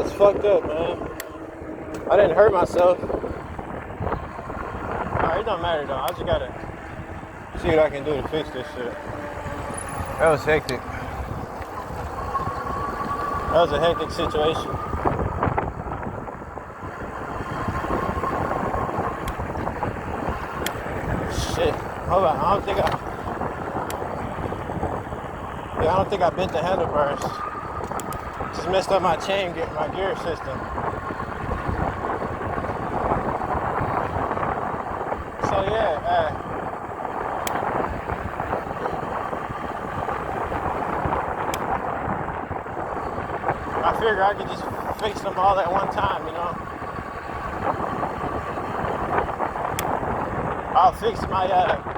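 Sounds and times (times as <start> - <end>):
road noise rumbling: 0.0 - 51.9
wind rushing over microphone: 0.0 - 51.9.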